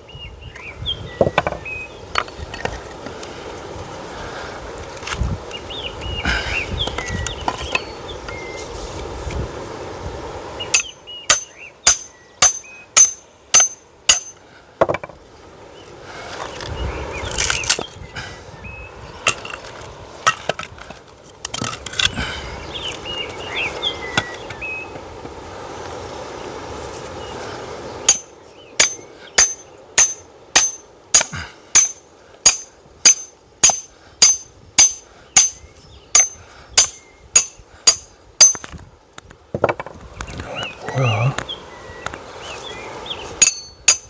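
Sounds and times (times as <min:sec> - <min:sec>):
hammer striking metal: 0:10.8 - 0:14.4, 0:28.1 - 0:35.6, 0:36.2 - 0:38.7, 0:43.4 - 0:44.0.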